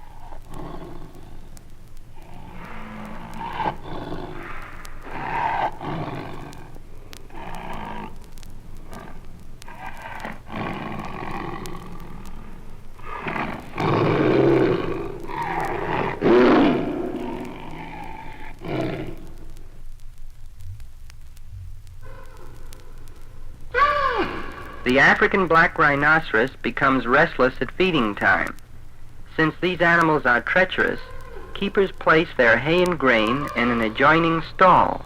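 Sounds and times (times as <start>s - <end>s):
tiger growling and snarling: 0.0s - 19.6s.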